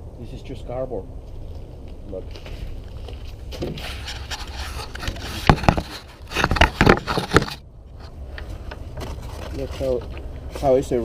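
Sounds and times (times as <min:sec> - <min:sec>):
cardboard crinkling and scraping: 0:02.4 - 0:11.0.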